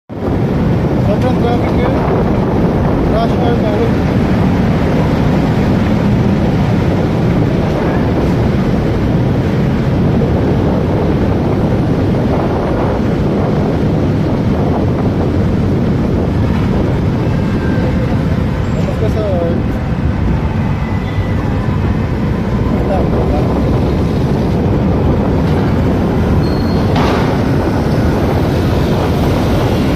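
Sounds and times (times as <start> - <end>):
motorcycle road noise: 0.1 - 29.9
wind on microphone: 0.1 - 29.9.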